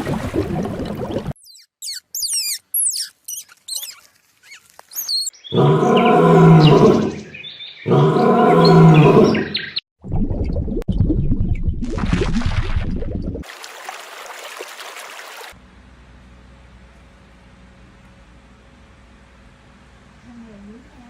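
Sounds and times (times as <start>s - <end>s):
high chirping whistles: 1.4s - 5.5s
long low animal calls: 5.5s - 7.3s, 7.9s - 9.6s.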